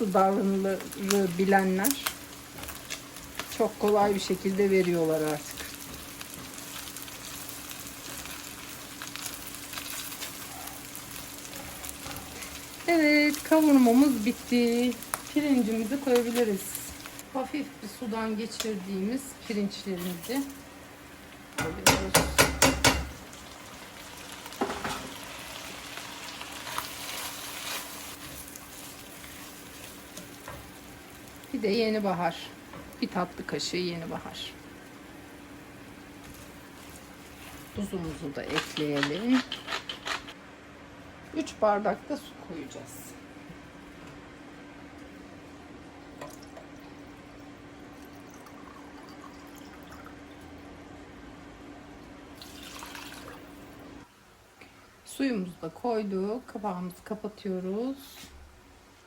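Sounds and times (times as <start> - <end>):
rice sizzling in hot fat: 0.0 - 40.4
spoon knocking in pot: 21.6 - 23.2
water pouring into a pot: 47.9 - 50.2, 52.4 - 53.6.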